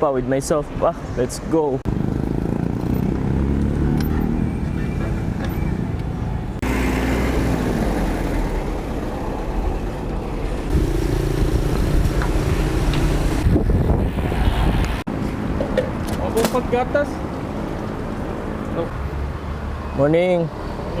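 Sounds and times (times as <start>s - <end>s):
traffic rumble: 0.0s - 21.0s
wind on microphone: 10.6s - 15.1s.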